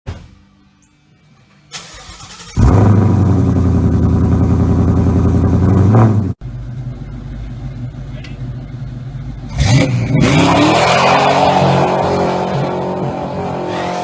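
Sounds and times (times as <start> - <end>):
loud car engine running: 2.6 - 9.5, 13.4 - 14.0.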